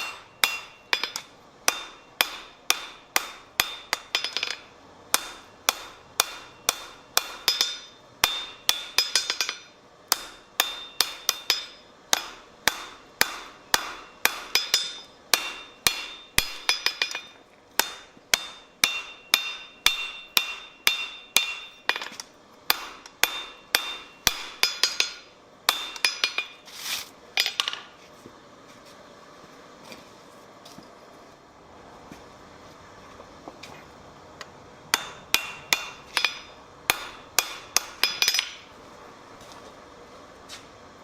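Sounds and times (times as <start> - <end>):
hammer striking steel on anvil: 0.0 - 26.6, 34.9 - 38.8.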